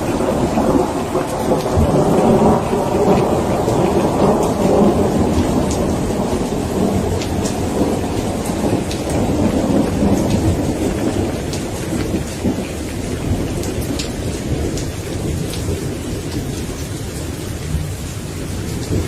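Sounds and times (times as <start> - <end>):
raindrop ticks: 0.0 - 19.0
rolling thunder rumble: 0.0 - 19.0
steady rain: 0.0 - 19.0.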